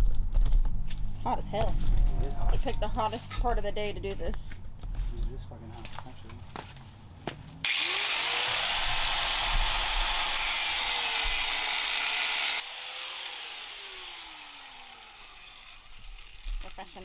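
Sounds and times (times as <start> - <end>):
grinder cutting metal: 7.6 - 17.0
grinder motor whine: 7.6 - 17.0.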